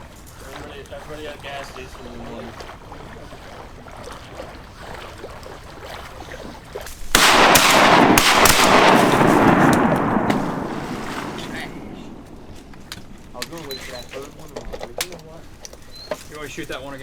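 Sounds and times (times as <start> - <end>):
shotgun shots: 7.1 - 13.3.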